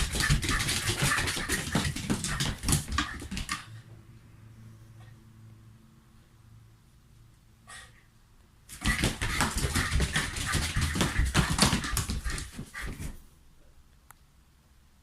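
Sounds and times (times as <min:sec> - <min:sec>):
dogs scrabbling and scuffling: 0:00.0 - 0:03.7, 0:08.7 - 0:13.2.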